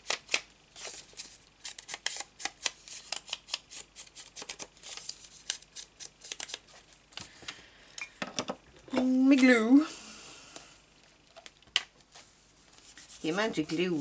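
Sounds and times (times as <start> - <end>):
ink pad brushing on paper: 12.2 - 14.0.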